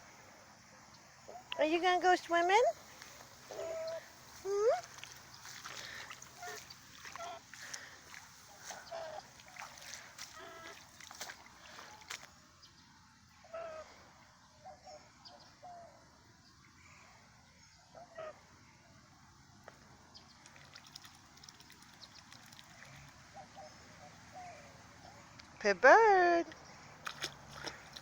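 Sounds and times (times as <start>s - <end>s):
goose soft calls: 1.2s - 12.2s, 13.4s - 14.0s.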